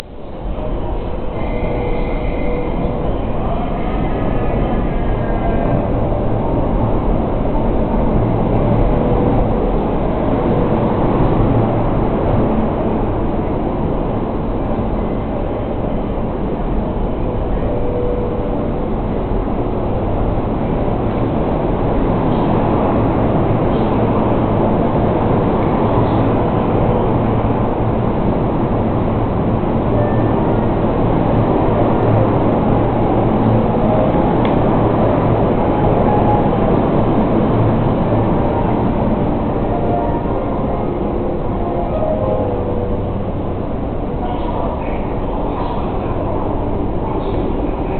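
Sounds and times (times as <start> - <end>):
train passing: 0.0 - 47.9.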